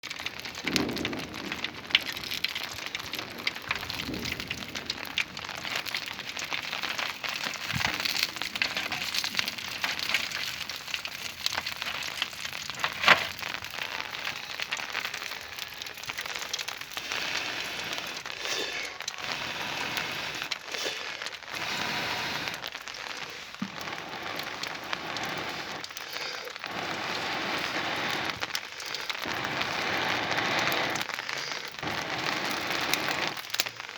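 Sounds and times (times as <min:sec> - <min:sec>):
steady rain falling: 0:00.0 - 0:33.9
sharp loud crack: 0:00.6 - 0:05.5.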